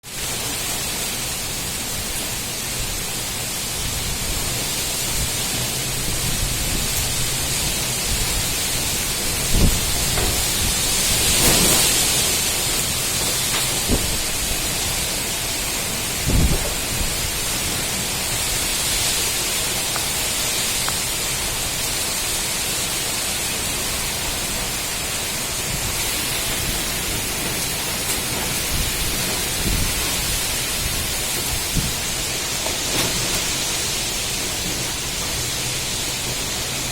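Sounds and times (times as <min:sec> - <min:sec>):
wind gusts thumping microphone: 0:01.8 - 0:22.6, 0:23.6 - 0:36.9
strong wind rushing: 0:05.2 - 0:15.2, 0:16.1 - 0:19.6, 0:25.5 - 0:32.3.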